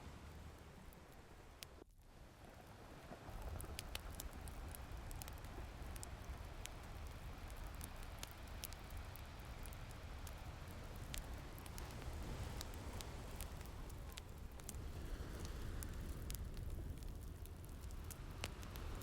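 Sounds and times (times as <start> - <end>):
fire crackling and popping: 2.6 - 19.0
rain hissing: 10.4 - 17.0.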